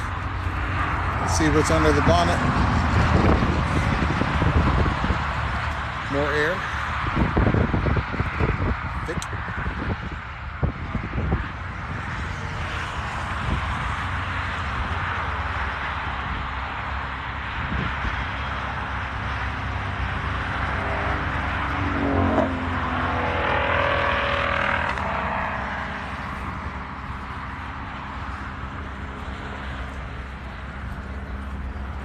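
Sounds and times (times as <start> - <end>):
car engine passing by: 0.0 - 32.0
outdoor background noise: 0.0 - 32.0.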